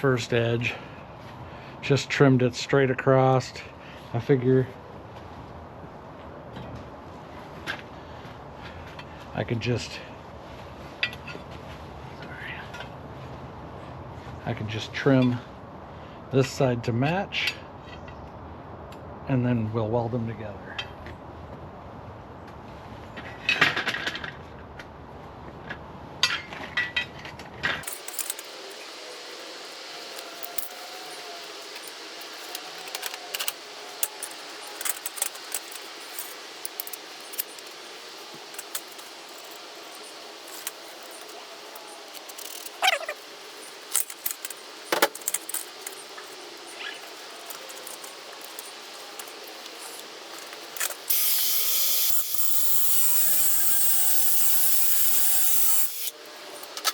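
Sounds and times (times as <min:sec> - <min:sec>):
steel pieces clinking and rattling: 0:27.8 - 0:56.9.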